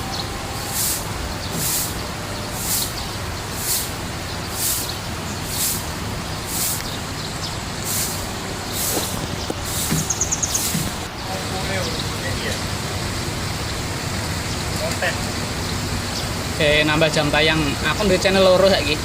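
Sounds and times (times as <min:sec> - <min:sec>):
sharp hiss: 0:03.6 - 0:07.0
pond water running: 0:08.8 - 0:11.2.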